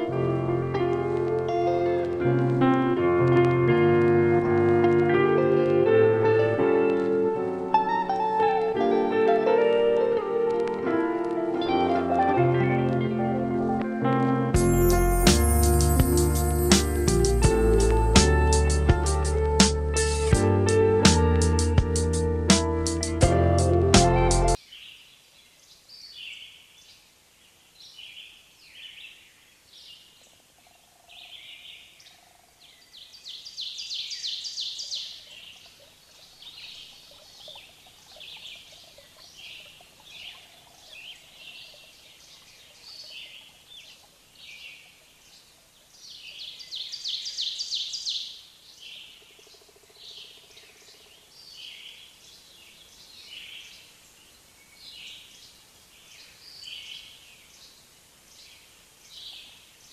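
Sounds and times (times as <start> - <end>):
small birds chirping: 24.5 - 59.9.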